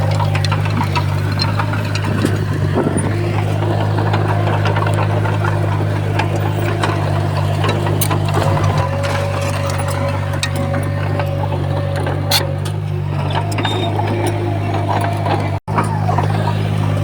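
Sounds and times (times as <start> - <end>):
bulldozer diesel engine running: 0.0 - 17.0
short clicks and clanks: 0.0 - 17.0.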